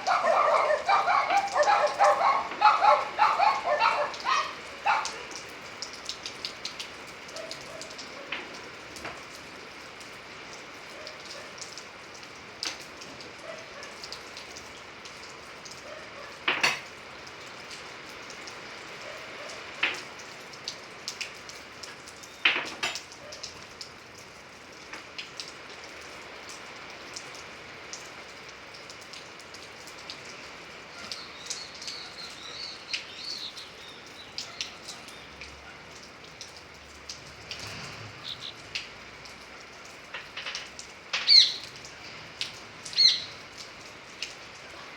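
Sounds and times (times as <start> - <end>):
steady rain: 0.0 - 44.9.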